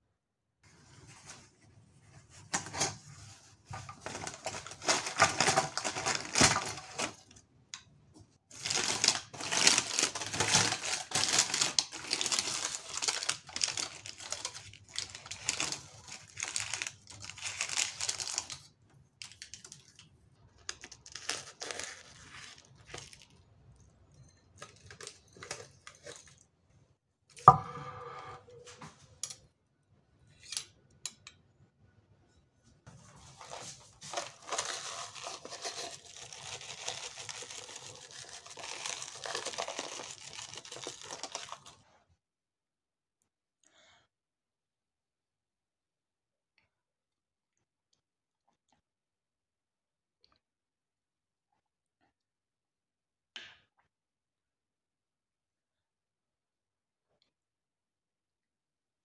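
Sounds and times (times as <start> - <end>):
baking paper crinkling: 2.2 - 7.4, 8.5 - 26.4, 32.9 - 42.0.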